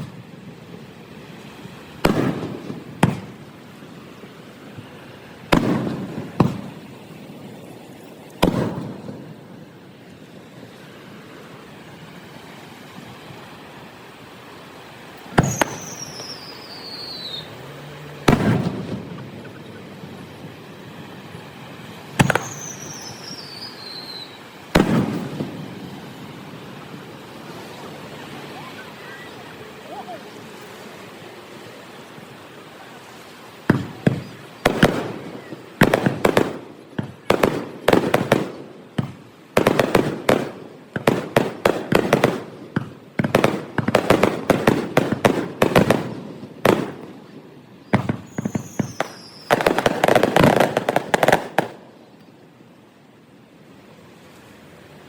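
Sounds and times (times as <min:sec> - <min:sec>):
fireworks bangs with rumble: 0:01.7 - 0:03.7, 0:04.7 - 0:07.2, 0:08.4 - 0:09.6, 0:15.3 - 0:16.6, 0:18.2 - 0:20.6, 0:22.1 - 0:26.2, 0:33.7 - 0:51.8
firework whistle sliding down: 0:15.4 - 0:17.6, 0:22.2 - 0:24.5, 0:48.0 - 0:49.9
firework bang with rumble: 0:18.3 - 0:19.2, 0:24.8 - 0:25.6.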